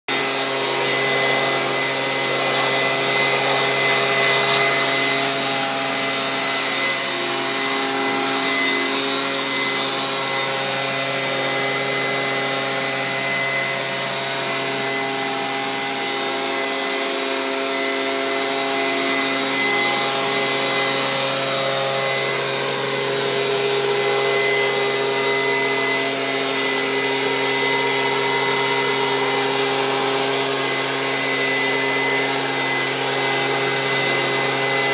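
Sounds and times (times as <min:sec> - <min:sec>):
leaf blower running: 0:00.0 - 0:34.9.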